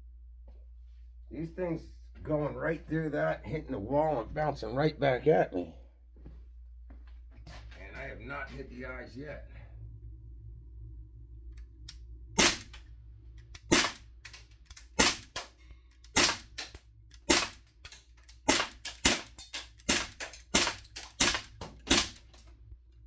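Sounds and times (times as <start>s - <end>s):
airsoft gun shots: 12.4s - 12.8s, 13.6s - 14.1s, 14.9s - 15.5s, 16.1s - 17.7s, 18.4s - 22.4s
pellets hitting targets: 12.4s - 12.8s, 13.6s - 22.5s.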